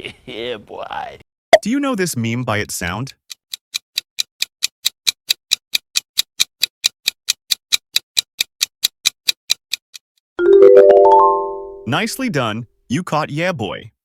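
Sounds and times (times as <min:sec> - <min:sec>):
rapid clock-like ticking: 0:03.1 - 0:10.0.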